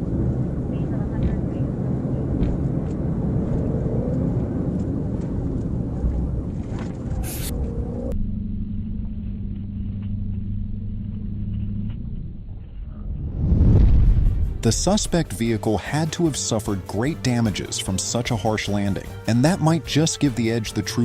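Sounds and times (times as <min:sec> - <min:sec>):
vehicle rumbling at speed: 0:00.0 - 0:14.7
low drone: 0:00.0 - 0:16.6.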